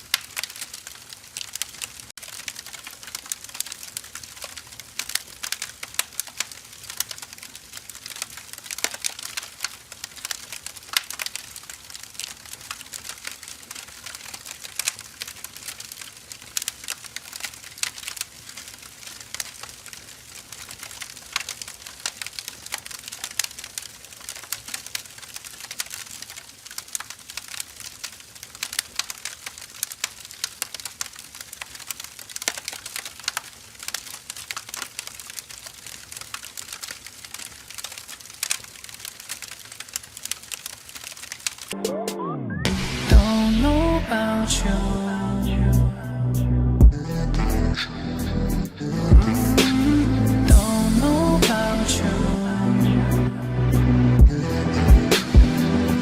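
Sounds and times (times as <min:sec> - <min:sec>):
firewood crackling and popping: 0:00.0 - 0:41.8, 0:46.8 - 0:56.0
faint hiss: 0:47.4 - 0:54.0.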